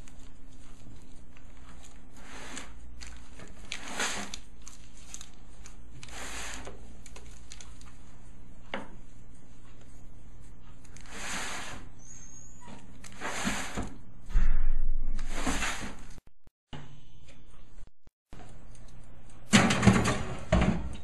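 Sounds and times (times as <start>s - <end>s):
rustling and scraping: 0.0s - 16.2s
steady low hum: 14.0s - 16.2s.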